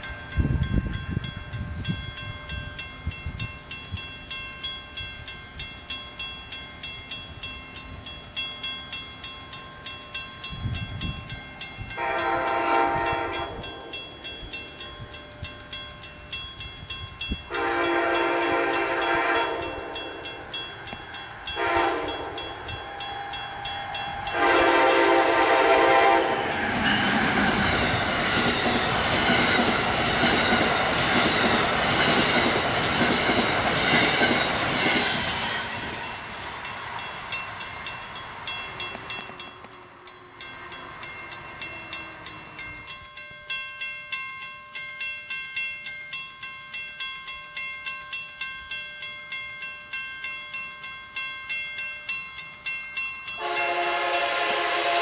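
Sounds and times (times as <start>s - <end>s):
bell ringing: 0.0s - 55.0s
train running past: 0.0s - 55.0s
train horn blast: 12.0s - 13.8s, 17.5s - 20.0s, 21.5s - 22.5s, 24.2s - 27.1s, 53.4s - 55.0s.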